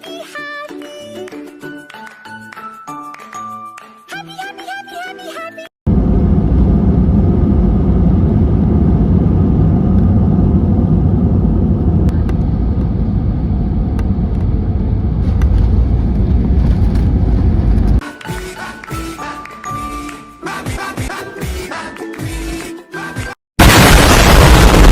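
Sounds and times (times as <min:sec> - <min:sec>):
low vehicle rumble: 0:05.9 - 0:18.0.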